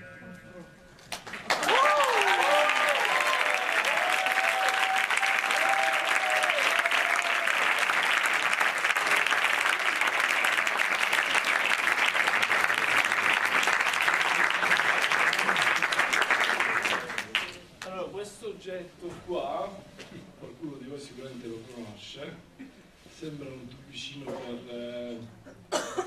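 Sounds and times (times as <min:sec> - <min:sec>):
audience applauding: 0:01.1 - 0:17.6.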